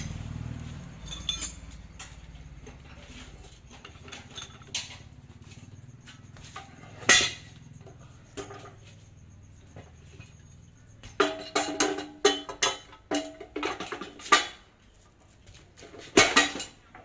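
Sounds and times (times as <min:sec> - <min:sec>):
metal tools clinking and tapping: 0:00.0 - 0:14.7, 0:15.8 - 0:17.0.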